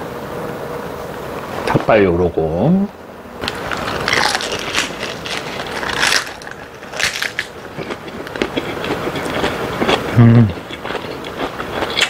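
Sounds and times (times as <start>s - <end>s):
crunching cabbage leaf: 3.4s - 12.0s.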